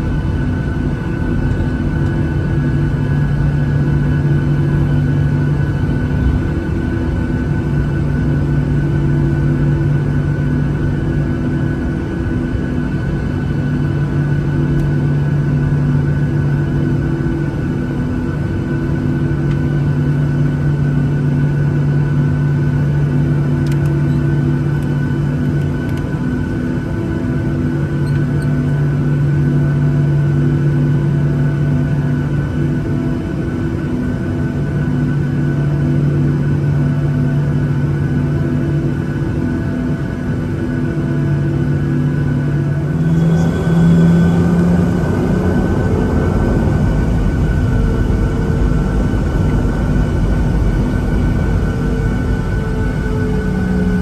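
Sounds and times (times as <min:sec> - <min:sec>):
airplane cabin drone: 0:00.0 - 0:54.0.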